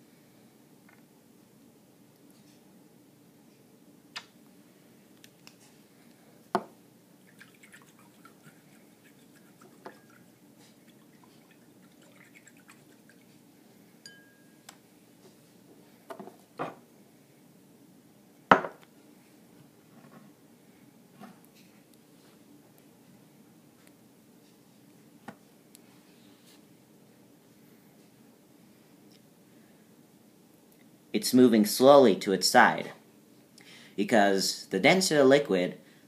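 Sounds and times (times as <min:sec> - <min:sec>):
clinks against a bowl: 0:14.0 - 0:14.6.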